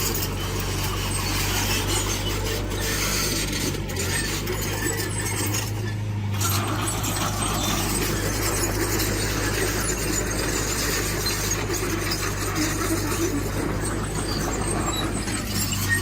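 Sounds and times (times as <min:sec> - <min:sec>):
diesel engine low hum: 0:00.0 - 0:16.0
metal scraping soil: 0:00.0 - 0:16.0.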